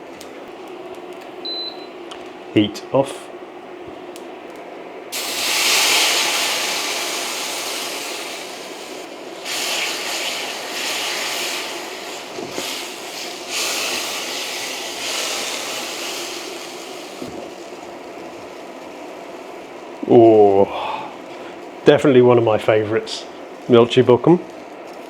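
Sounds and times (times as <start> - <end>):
loud cooking hiss: 5.1 - 21.6.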